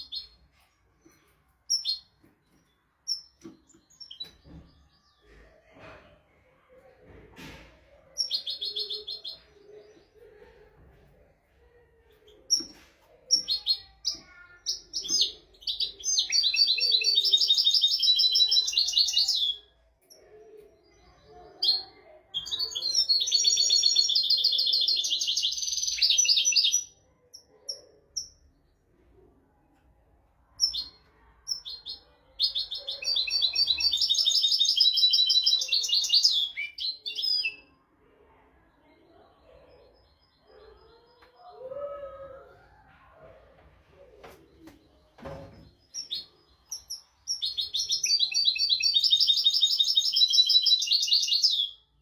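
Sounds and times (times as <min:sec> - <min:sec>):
bird twittering song: 0:22.4 - 0:28.7, 0:30.6 - 0:37.8, 0:44.7 - 0:51.9.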